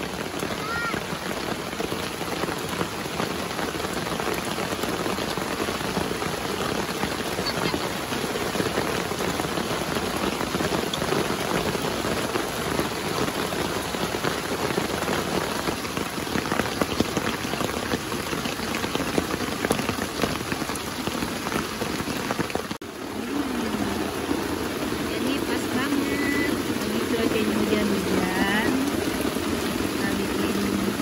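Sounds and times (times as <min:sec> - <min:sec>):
rain pattering on tent fabric: 0:00.0 - 0:31.0.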